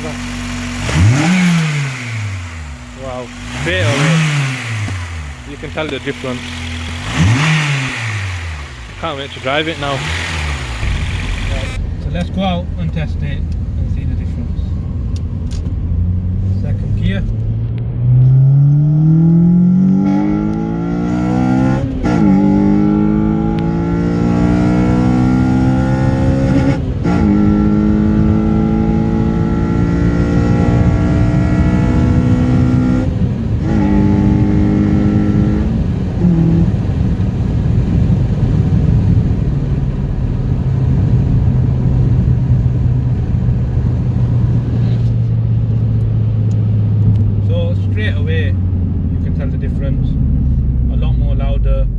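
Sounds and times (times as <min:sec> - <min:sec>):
car engine revving through gears: 0:00.0 - 0:51.5.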